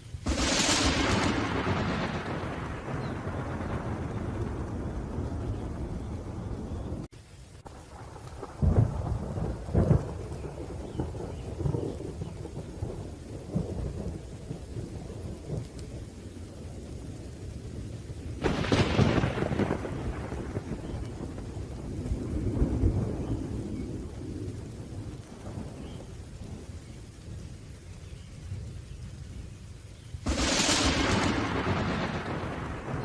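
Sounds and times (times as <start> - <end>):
rain falling: 0.0 - 33.0
rolling thunder: 0.1 - 33.0
sharp thunderclap: 0.2 - 7.1, 7.7 - 15.9, 18.4 - 26.7, 30.2 - 33.0.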